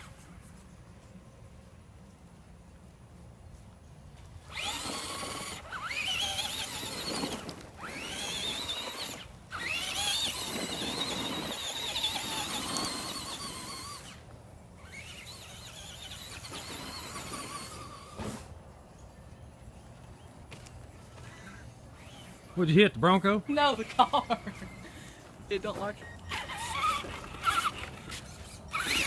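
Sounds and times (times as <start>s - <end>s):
electric motor whining: 4.4s - 18.6s, 21.0s - 22.7s, 25.8s - 29.0s.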